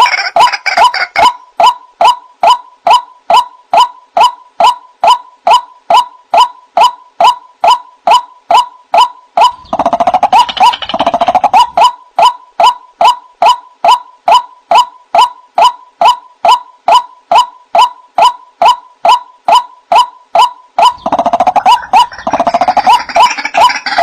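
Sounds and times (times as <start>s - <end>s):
overlapping bird chatter: 0.0s - 3.0s, 7.6s - 13.6s, 19.5s - 24.0s.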